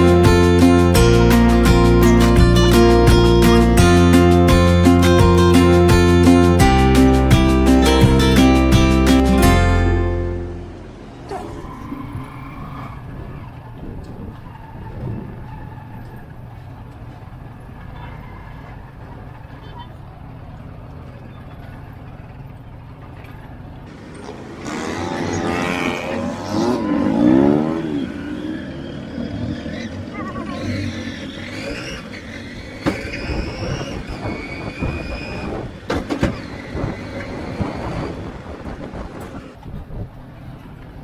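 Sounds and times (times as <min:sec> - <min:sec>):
road noise: 0:00.0 - 0:41.0
small motorcycle engine revving: 0:23.9 - 0:39.7.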